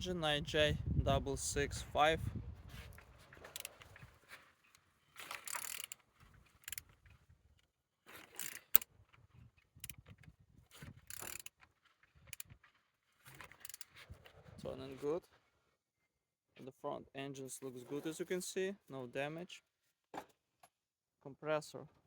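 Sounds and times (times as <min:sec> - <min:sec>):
engine clicking turned by hand: 0:03.0 - 0:04.2, 0:05.2 - 0:07.2, 0:10.9 - 0:12.6.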